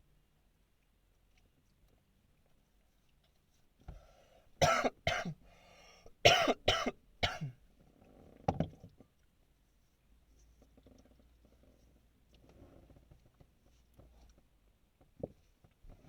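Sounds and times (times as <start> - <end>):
breathy throat clearing: 4.6 - 5.4
man coughing: 4.6 - 5.4, 6.2 - 7.6.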